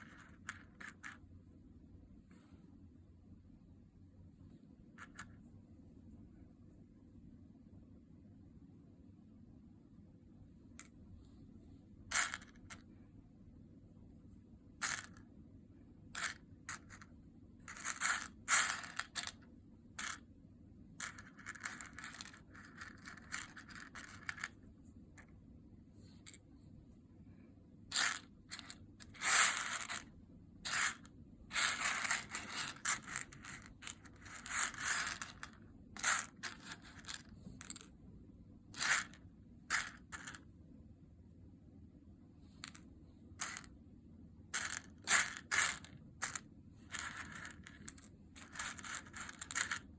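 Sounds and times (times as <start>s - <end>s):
coffee beans rattling: 27.9s - 30.0s, 30.7s - 37.9s, 38.8s - 40.4s, 44.6s - 49.9s.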